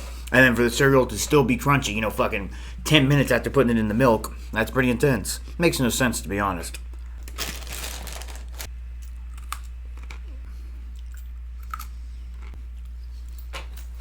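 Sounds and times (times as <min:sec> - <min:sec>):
steady low hum: 0:00.0 - 0:14.0
person chewing crunchy cereal: 0:07.2 - 0:13.0.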